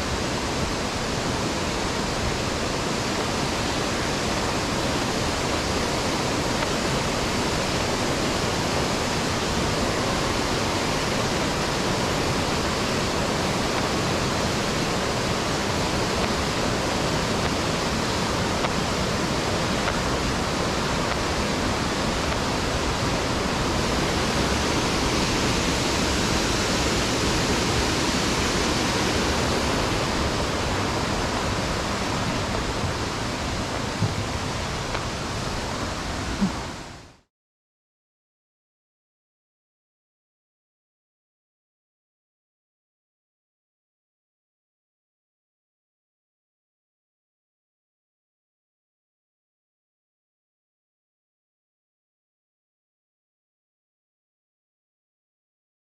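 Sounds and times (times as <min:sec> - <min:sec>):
water rushing over rocks: 0:00.0 - 0:37.3.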